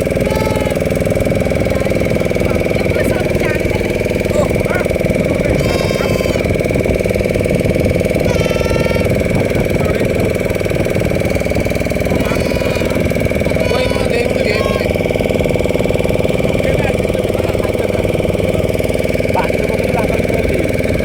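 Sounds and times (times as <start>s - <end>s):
boat engine running: 0.0s - 21.0s
short high calls: 5.5s - 6.7s, 8.2s - 9.6s, 11.2s - 15.1s.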